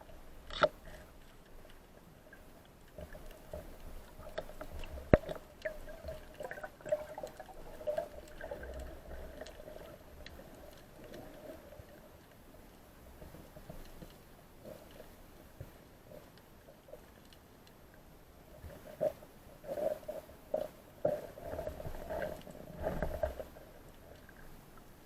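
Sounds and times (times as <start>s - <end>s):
small clicks and crackles: 0.0s - 25.0s
water gurgling underwater: 3.0s - 12.0s.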